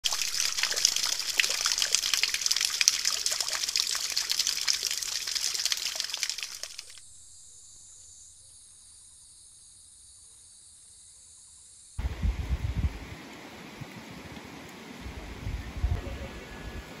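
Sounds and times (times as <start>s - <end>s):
water splashing and trickling: 0.0s - 7.0s
faint steady hiss: 0.0s - 17.0s.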